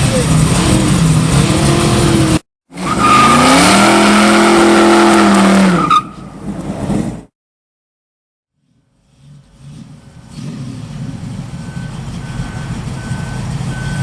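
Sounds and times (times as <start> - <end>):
car engine revving hard: 0.1 - 5.8, 9.4 - 11.2.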